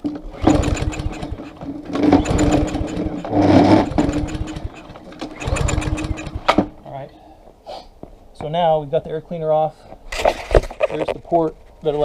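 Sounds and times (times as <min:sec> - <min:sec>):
small gasoline engine running: 0:00.2 - 0:06.8.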